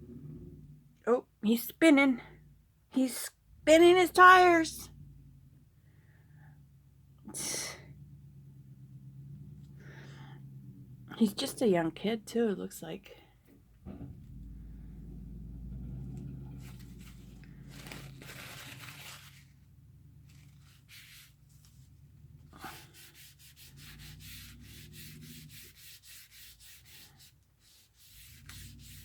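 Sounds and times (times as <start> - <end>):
truck engine hum: 0.0 - 27.0, 28.1 - 29.0
scratching on paper: 20.3 - 21.8, 22.6 - 29.0.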